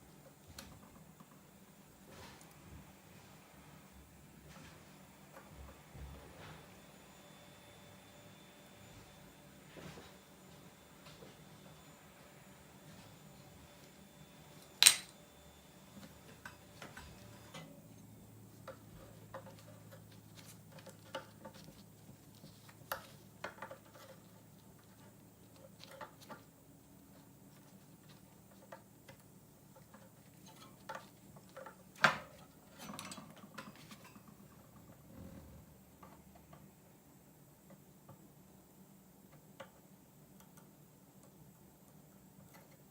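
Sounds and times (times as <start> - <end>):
clicks and clinks of small parts: 14.8 - 15.1.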